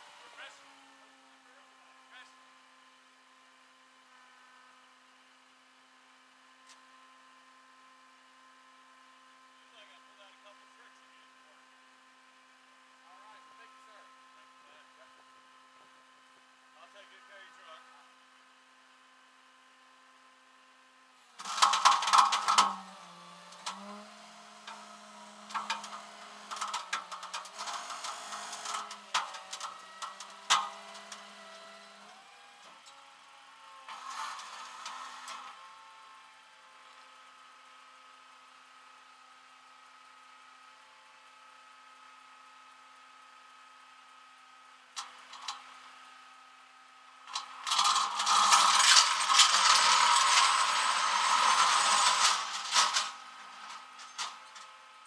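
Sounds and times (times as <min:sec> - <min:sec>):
mechanical clattering and rattling: 0:21.4 - 0:22.8, 0:25.4 - 0:30.8, 0:47.3 - 0:54.7.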